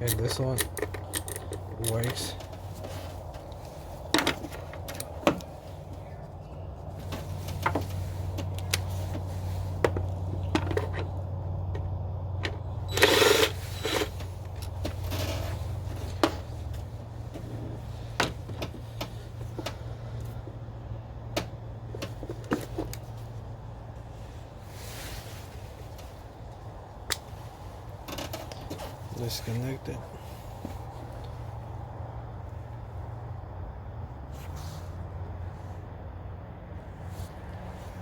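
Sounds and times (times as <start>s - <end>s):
steady low hum: 0.0s - 38.0s
short rustling scrape: 24.2s - 26.2s, 34.3s - 35.0s.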